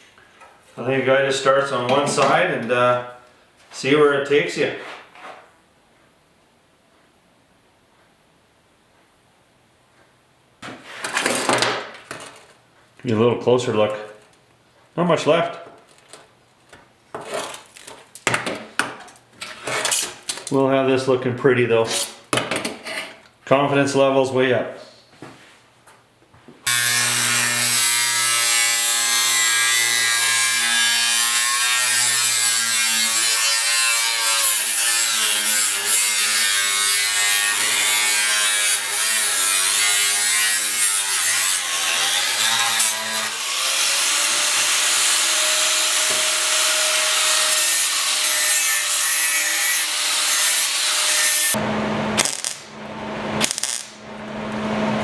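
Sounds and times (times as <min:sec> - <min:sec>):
power tool grinding metal: 0:26.7 - 0:51.6.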